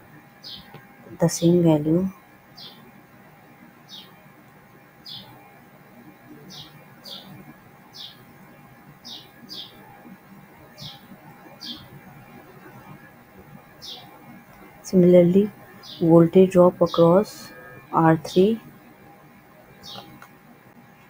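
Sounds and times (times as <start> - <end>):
faint room hum: 0.0 - 21.0
bird chirping: 0.4 - 0.8, 2.5 - 2.9, 3.8 - 4.2, 5.0 - 5.5, 6.2 - 8.3, 9.0 - 9.9, 10.6 - 12.0, 13.7 - 14.2, 14.9 - 18.6, 19.8 - 20.2.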